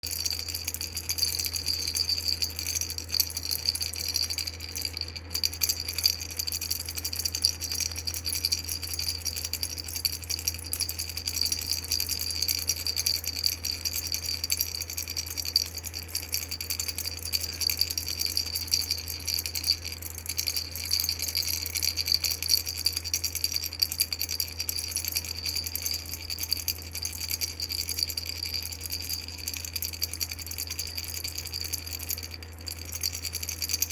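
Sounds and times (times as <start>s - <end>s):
baby rattle shaken: 0.0s - 33.9s
steady low hum: 0.0s - 33.9s.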